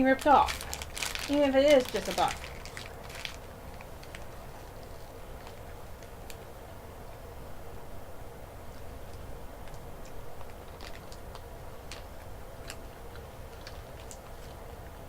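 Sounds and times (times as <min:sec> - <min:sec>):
wrapper crinkling: 0:00.0 - 0:06.4, 0:10.4 - 0:14.6.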